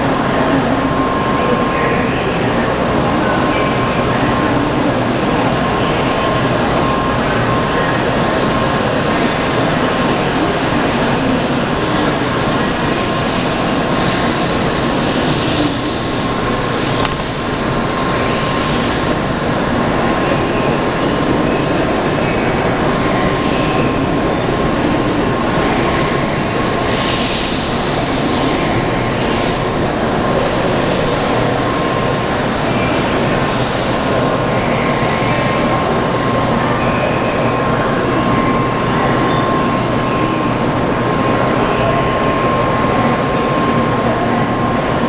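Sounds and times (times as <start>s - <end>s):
train wheels and motors rumbling: 0.0s - 45.0s
high hissing surges: 9.0s - 33.3s.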